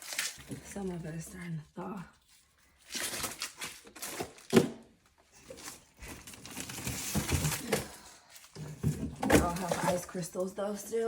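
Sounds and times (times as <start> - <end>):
plastic crinkling: 0.0 - 4.6.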